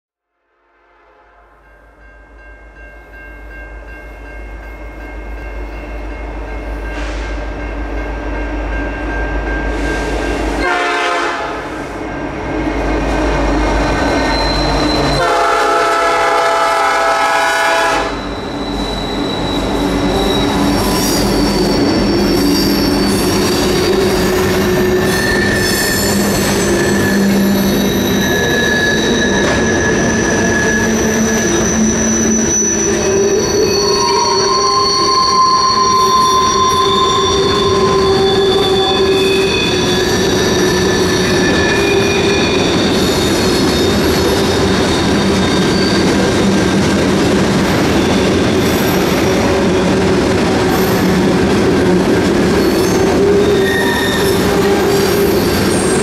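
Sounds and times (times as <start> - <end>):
crossing bell ringing: 1.5 - 11.2, 17.8 - 47.0
locomotive air horn blast: 10.6 - 11.8, 15.2 - 18.2
train wheel squeal: 13.5 - 15.8, 17.9 - 47.0, 47.6 - 50.1, 50.7 - 56.0.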